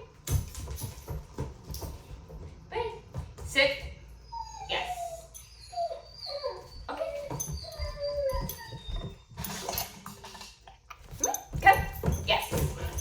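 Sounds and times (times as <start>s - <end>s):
puppy whining: 4.1s - 10.0s.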